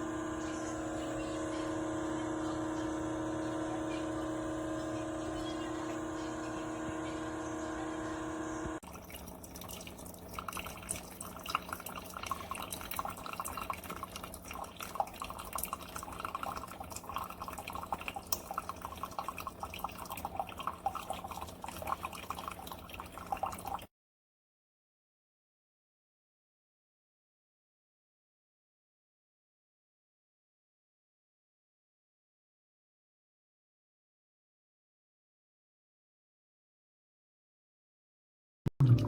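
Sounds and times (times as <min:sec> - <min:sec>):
coffee maker humming: 0:00.0 - 0:23.9
coffee dripping into a cup: 0:08.8 - 0:23.9.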